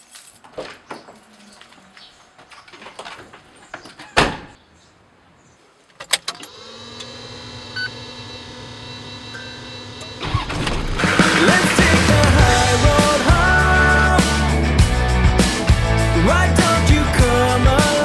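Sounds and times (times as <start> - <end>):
engine cranking and idling: 6.2 - 18.0
music: 11.2 - 18.0.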